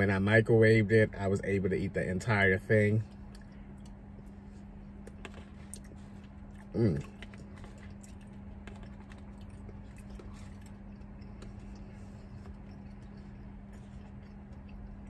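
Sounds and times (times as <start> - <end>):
low hum: 0.0 - 15.0
quiet chewing: 3.0 - 15.0.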